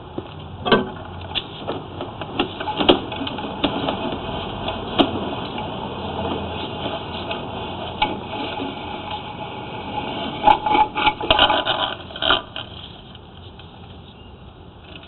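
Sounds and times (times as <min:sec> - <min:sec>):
sharp knocks and clatter: 0:00.6 - 0:09.4
rubbing and rattling handling noise: 0:00.7 - 0:14.1.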